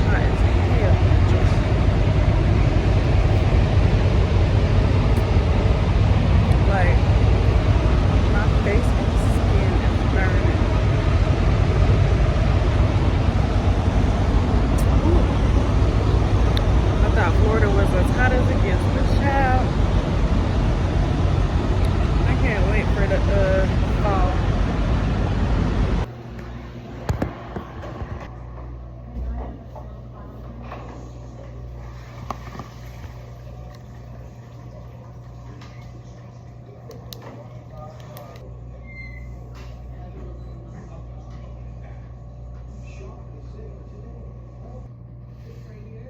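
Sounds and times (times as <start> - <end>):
truck engine and road rumble: 0.0 - 26.1.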